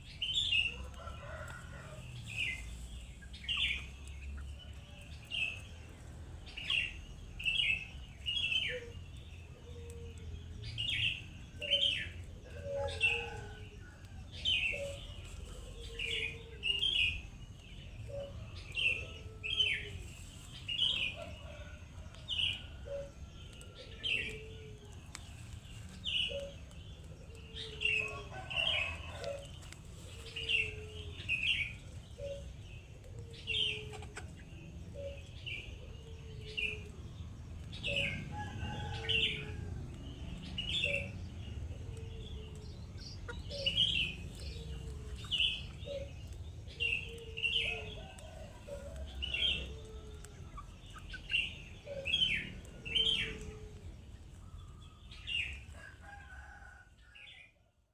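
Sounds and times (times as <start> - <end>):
falling bird calls: 0.0 - 39.6
birds chirping: 0.0 - 57.4.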